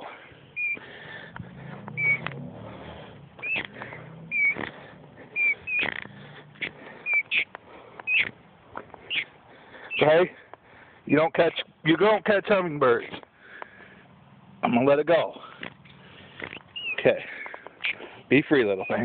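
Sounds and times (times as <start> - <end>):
bird chirping: 0.1 - 2.5, 3.2 - 10.2, 15.7 - 19.0
faint clicks and rustles: 3.4 - 9.1, 15.5 - 18.2.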